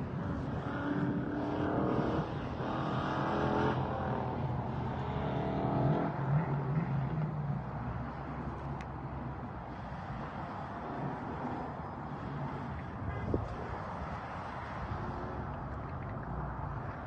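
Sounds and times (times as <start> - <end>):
distant car engine revving: 0.2 - 8.2.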